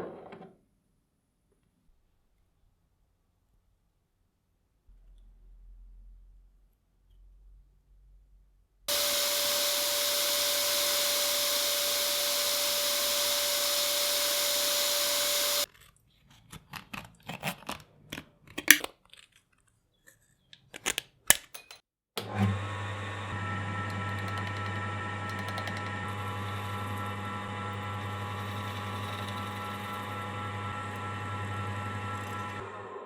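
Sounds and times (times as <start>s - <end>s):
small motor humming: 8.9s - 15.7s, 22.4s - 33.0s.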